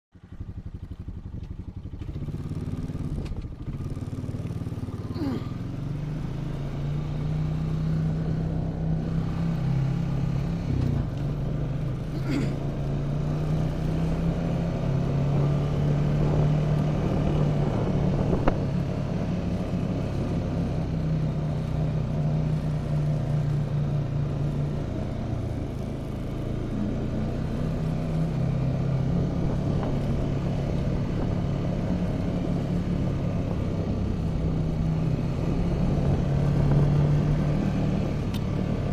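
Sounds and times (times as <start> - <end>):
vehicle engine droning: 0.2 - 38.9.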